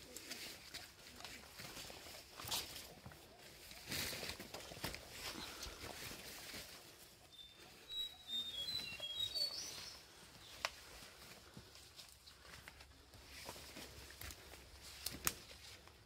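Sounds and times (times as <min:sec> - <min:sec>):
leaves brushing: 0:00.0 - 0:07.9, 0:08.7 - 0:16.0
footsteps on forest trail: 0:00.0 - 0:16.0
bird whistling song: 0:07.3 - 0:10.5.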